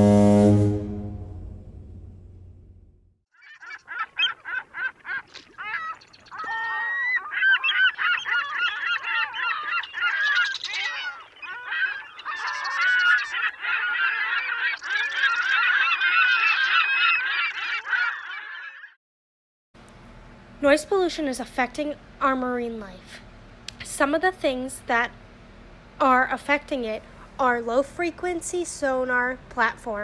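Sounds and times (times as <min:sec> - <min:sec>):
flock of birds calling: 0:03.4 - 0:18.9.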